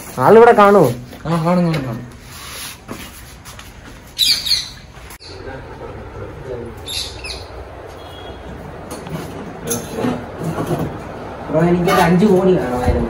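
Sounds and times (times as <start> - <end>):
bird squawking: 4.2 - 5.5, 6.8 - 8.5.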